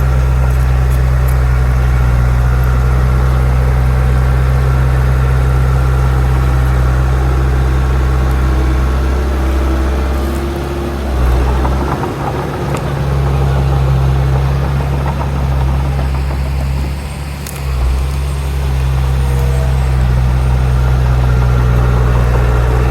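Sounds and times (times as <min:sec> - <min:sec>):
heavy diesel engine running: 0:00.0 - 0:22.9.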